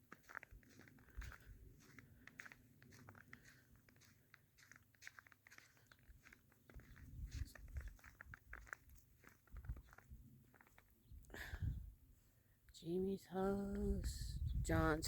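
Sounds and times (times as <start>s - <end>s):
footsteps crunching in snow: 0.0s - 10.9s.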